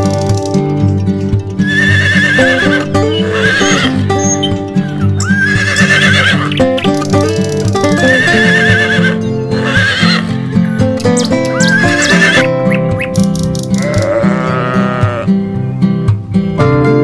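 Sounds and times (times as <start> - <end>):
background music: 0.0 - 17.0
horse whinnies: 1.6 - 4.0, 5.2 - 6.5, 8.0 - 10.3, 11.5 - 12.5, 13.8 - 15.3.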